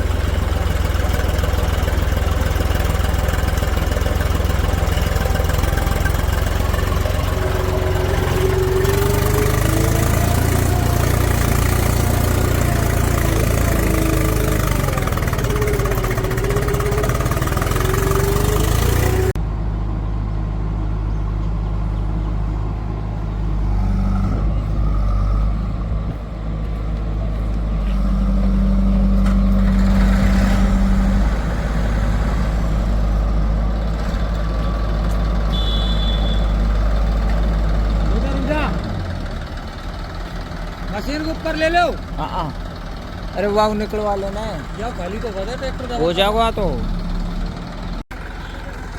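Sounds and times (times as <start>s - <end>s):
heavy diesel machinery running: 0.0s - 48.9s
quieter lower engine running: 0.0s - 48.9s.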